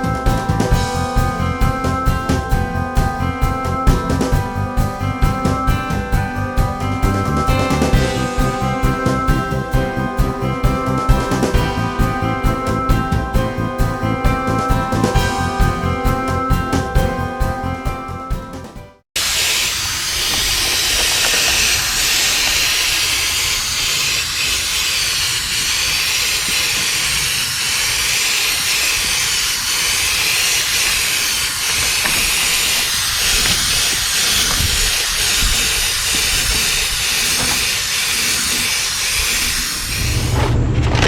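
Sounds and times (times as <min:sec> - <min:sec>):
loud steady hiss: 0:19.2 - 0:40.3
low rumble: 0:39.7 - 0:41.0.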